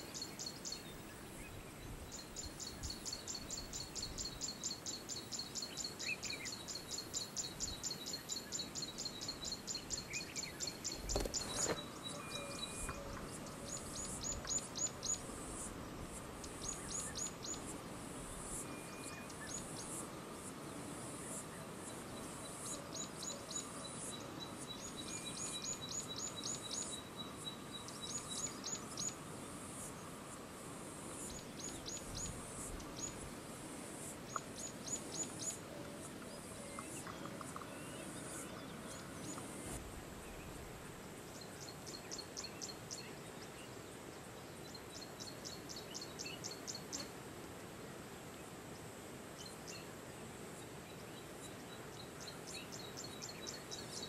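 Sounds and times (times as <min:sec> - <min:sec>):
bird chirping: 0:00.0 - 0:15.7, 0:22.1 - 0:29.2
steady high hiss: 0:00.0 - 0:54.0.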